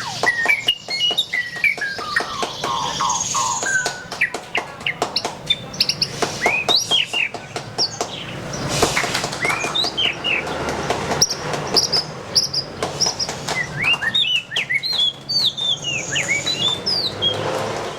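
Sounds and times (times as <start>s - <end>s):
bird whistling song: 0.0s - 4.4s, 5.5s - 10.6s, 11.2s - 17.5s
bird clicking notes: 0.0s - 7.9s.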